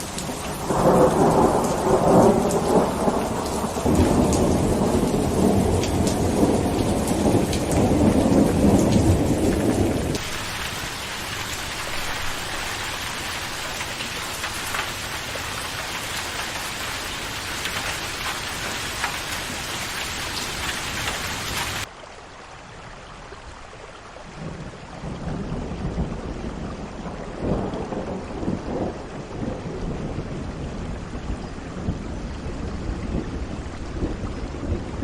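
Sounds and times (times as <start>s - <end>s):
thunder rolling: 0.0s - 16.1s, 25.0s - 35.0s
heavy rain: 0.0s - 35.0s.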